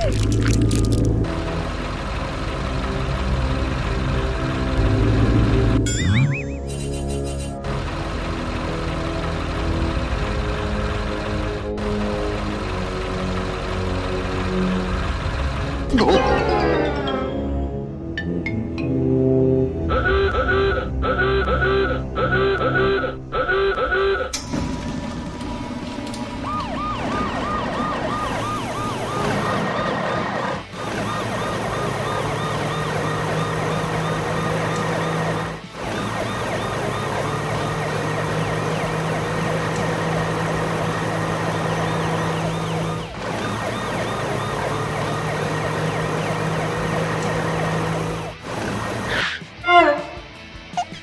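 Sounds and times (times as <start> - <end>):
wailing police siren: 0.0 - 6.2, 19.8 - 24.4, 25.9 - 50.3
fast yelping police siren: 19.9 - 24.4, 26.3 - 50.2.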